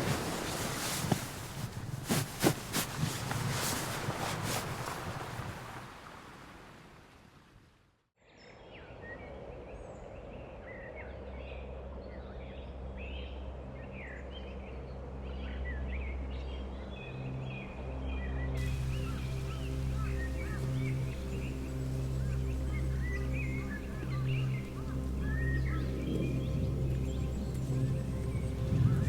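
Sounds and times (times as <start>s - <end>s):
rushing outdoor noise: 0.0s - 6.9s, 18.6s - 29.0s
flock of birds chirping: 18.6s - 29.0s.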